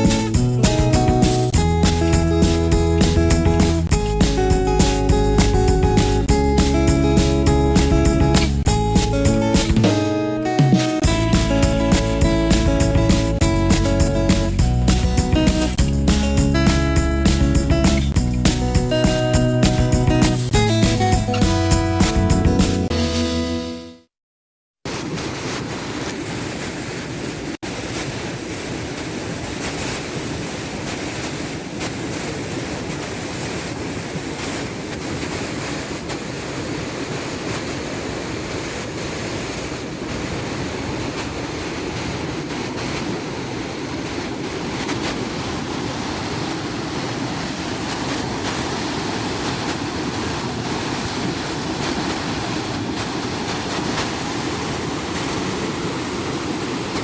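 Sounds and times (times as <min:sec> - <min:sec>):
waterfall rushing: 0:00.0 - 0:21.1, 0:35.8 - 0:57.0.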